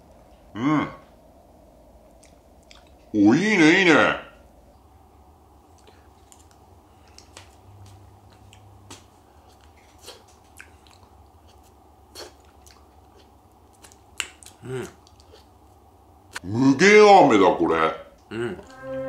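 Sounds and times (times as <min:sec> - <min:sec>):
faint low hum: 0:00.0 - 0:19.0
chewing and wet mouth clicks: 0:02.1 - 0:03.1, 0:05.7 - 0:16.4.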